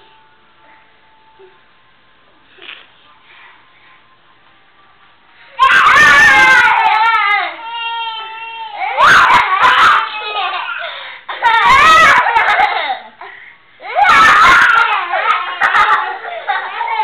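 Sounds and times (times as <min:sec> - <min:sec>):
young child crying and screaming: 0:05.6 - 0:12.5, 0:13.8 - 0:17.0.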